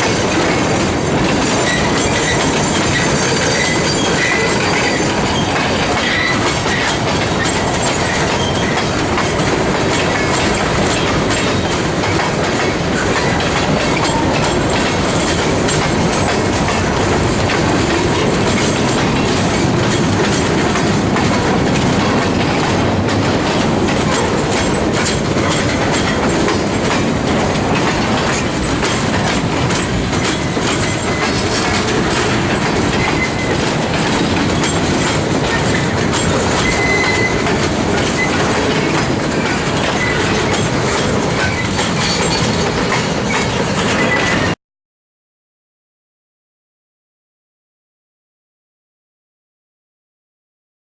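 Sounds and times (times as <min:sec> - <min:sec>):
train wheels clicking over rail joints: 0:00.0 - 0:44.6
wheel squeal: 0:01.4 - 0:08.9, 0:32.5 - 0:33.6, 0:34.3 - 0:44.5.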